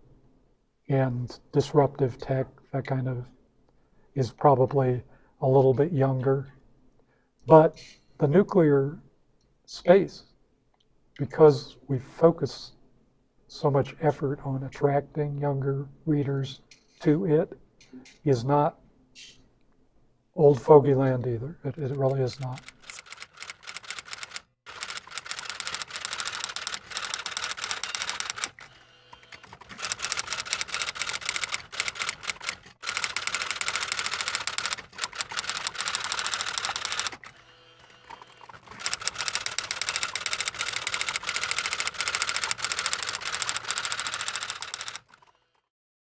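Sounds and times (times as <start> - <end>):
rapid typing clacks: 21.8 - 45.6.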